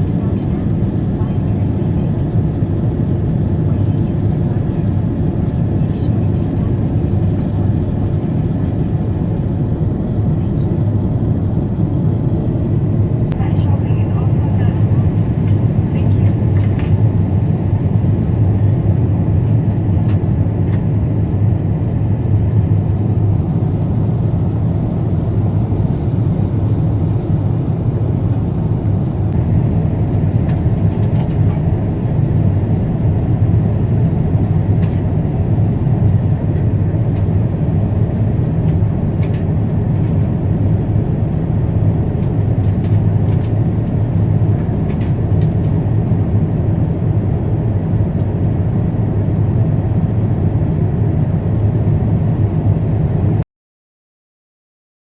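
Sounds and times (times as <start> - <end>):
jet engine rumble inside cabin: 0.0 - 53.4.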